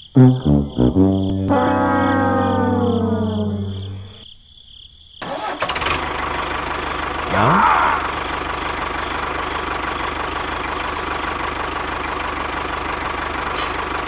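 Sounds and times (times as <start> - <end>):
diesel engine starting and idling: 5.2 - 14.0.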